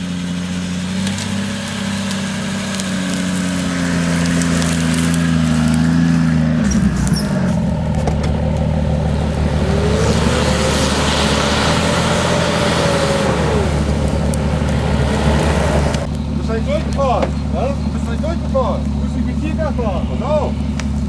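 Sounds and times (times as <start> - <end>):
off-road vehicle engine running: 0.0 - 21.0.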